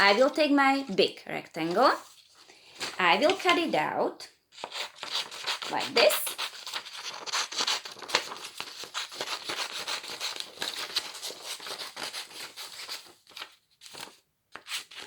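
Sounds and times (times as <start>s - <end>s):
paper rustling: 1.6s - 3.7s, 4.6s - 15.0s
scissors snipping paper: 4.6s - 12.6s.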